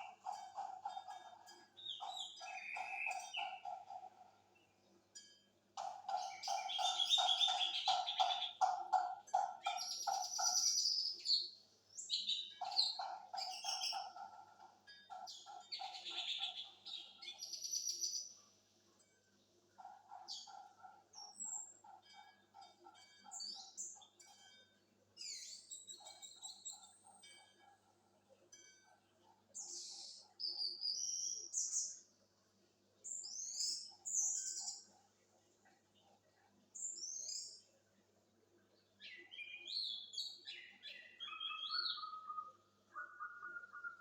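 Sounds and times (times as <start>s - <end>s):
bird singing whistles and trills: 1.8s - 3.6s, 6.2s - 8.6s, 29.6s - 32.0s, 33.1s - 34.9s, 39.0s - 44.0s
thrush singing whistled notes: 41.1s - 44.0s.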